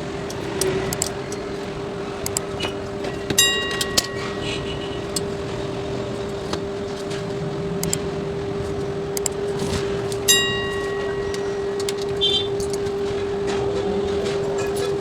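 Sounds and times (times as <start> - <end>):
steady hum: 0.0 - 15.0
clicks of tools being handled: 0.2 - 4.4, 5.0 - 5.5, 6.3 - 13.2
ringing metallic clink: 3.3 - 5.4, 10.3 - 12.8.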